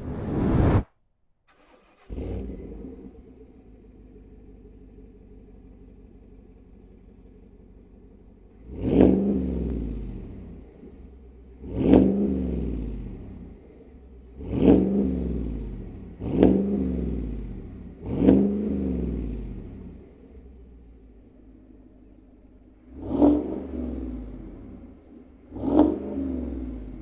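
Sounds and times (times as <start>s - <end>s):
car engine revving: 8.5s - 21.4s, 22.7s - 27.0s.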